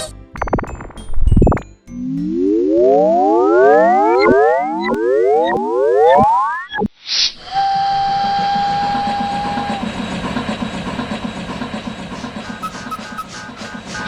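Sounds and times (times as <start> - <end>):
synth music: 0.0 - 6.8, 8.3 - 14.0
steam hissing: 7.4 - 14.0
train whistle blast: 7.6 - 10.1, 12.4 - 14.0
low chugging rumble: 7.6 - 14.0.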